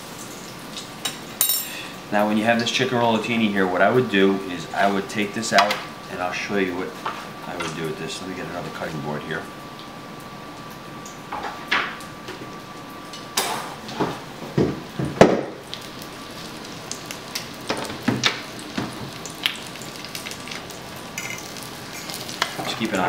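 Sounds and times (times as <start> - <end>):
chicken sizzling in oil: 15.5 - 23.0
kitchen utensils clattering: 21.2 - 22.9.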